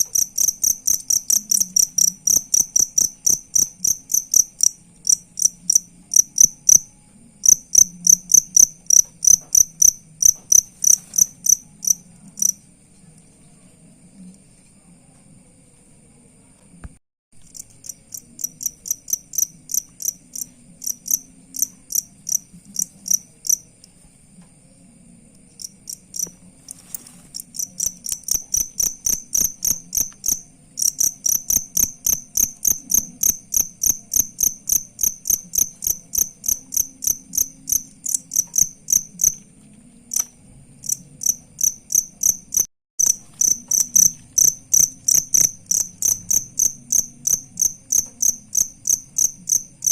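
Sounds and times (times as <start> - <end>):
cricket chirping: 0.0 - 49.9.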